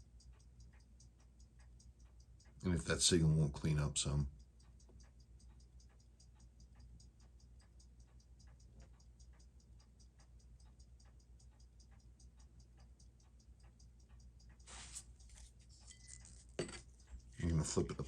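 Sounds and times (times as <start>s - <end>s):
watch ticking faintly: 0.0s - 18.0s.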